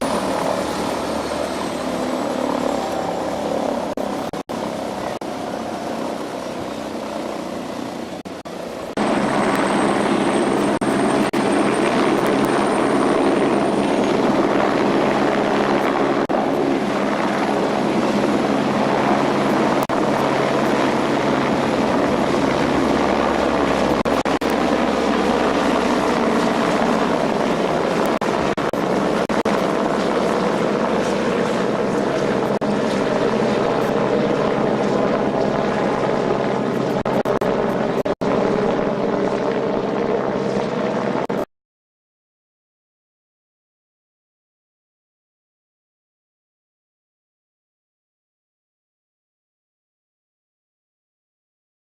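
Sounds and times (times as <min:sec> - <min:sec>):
helicopter rotor and engine: 0:00.0 - 0:41.5.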